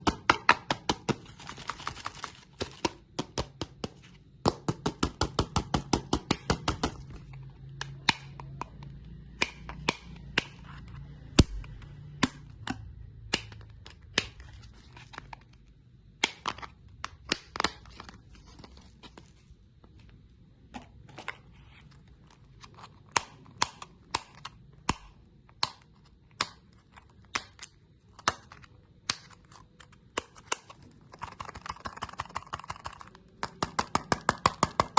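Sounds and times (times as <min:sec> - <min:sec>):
hard candy crunching: 0:21.8 - 0:34.9.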